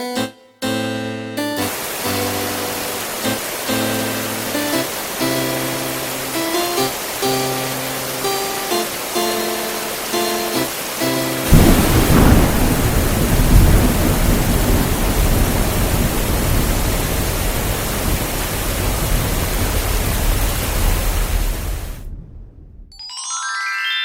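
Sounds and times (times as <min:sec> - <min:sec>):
heavy rain: 0:01.6 - 0:22.6
thunder rumbling: 0:11.4 - 0:22.9.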